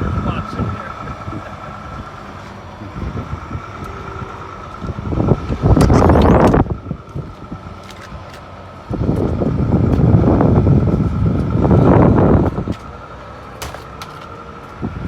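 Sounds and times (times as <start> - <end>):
car engine running: 0.0 - 15.0
wind buffeting microphone: 2.8 - 13.2, 14.7 - 15.0.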